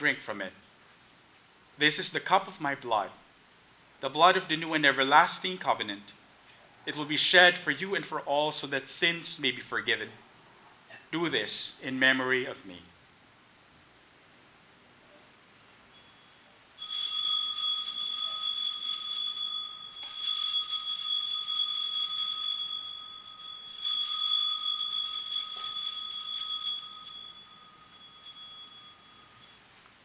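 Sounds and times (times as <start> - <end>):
altar bells jingling: 15.9 - 29.9.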